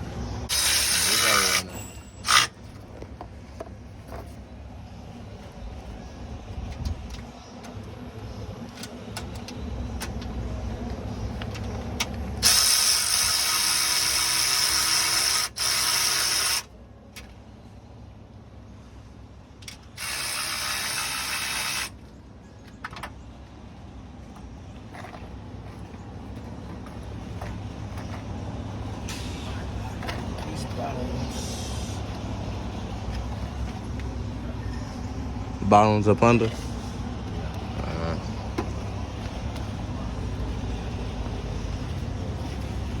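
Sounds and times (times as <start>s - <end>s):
loud mechanical hissing: 0.4s - 2.5s, 12.4s - 16.7s, 20.0s - 22.0s.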